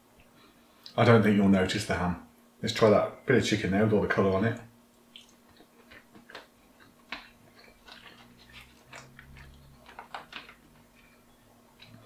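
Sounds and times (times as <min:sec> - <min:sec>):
faint chewing: 0:04.9 - 0:12.0.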